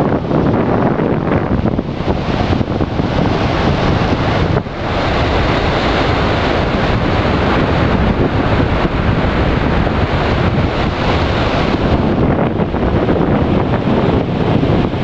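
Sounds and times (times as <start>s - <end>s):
heavy surf breaking: 0.0s - 15.0s
wind buffeting microphone: 0.0s - 15.0s.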